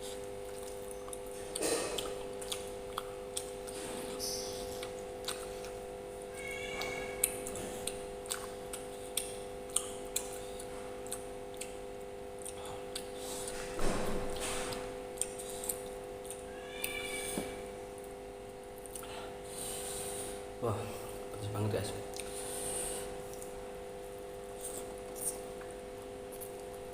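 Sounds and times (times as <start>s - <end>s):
moist chewing: 0.0s - 13.7s, 14.3s - 17.4s, 22.1s - 26.8s
steady low hum: 0.0s - 26.9s.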